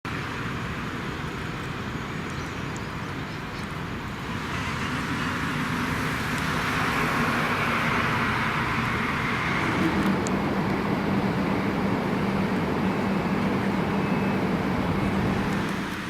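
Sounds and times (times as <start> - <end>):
street vehicle rush: 0.0 - 16.0.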